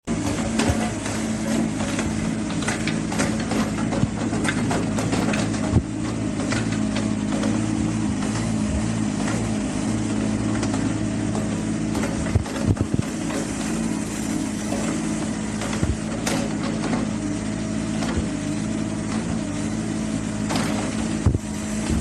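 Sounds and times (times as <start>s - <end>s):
excavator diesel engine running: 0.0s - 22.0s
metal clanks and knocks: 0.2s - 8.5s, 10.5s - 14.0s, 14.6s - 17.3s, 20.4s - 22.0s.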